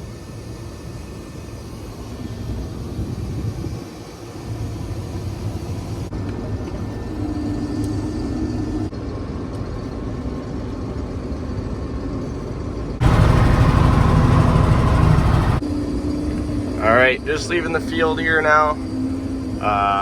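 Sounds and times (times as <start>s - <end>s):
combine harvester engine rumble: 0.0s - 20.0s.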